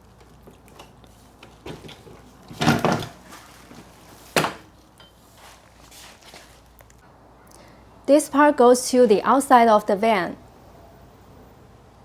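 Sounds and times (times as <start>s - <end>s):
window unit knocking and clattering: 0.8s - 4.8s.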